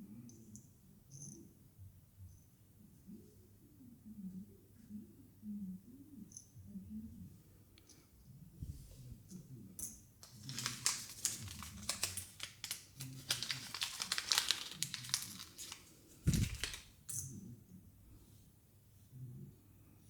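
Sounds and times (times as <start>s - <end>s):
plastic wrapping crinkling and tearing: 10.2s - 17.0s.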